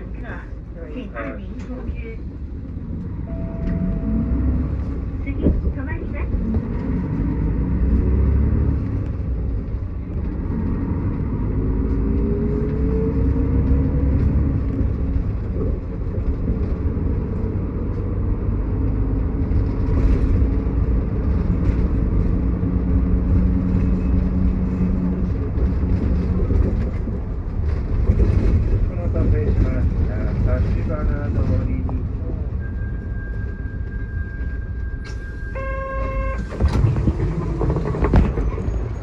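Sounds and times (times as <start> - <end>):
bus engine and drivetrain rumble: 0.0 - 39.0.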